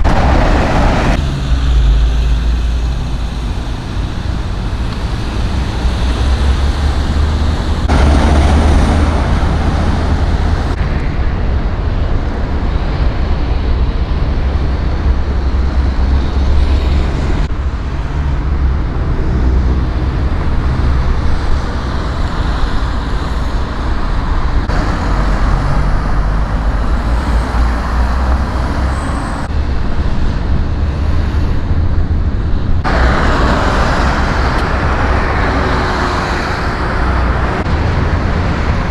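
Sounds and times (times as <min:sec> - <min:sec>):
road traffic: 0:00.0 - 0:38.9
vehicle engine rumble: 0:00.0 - 0:38.9.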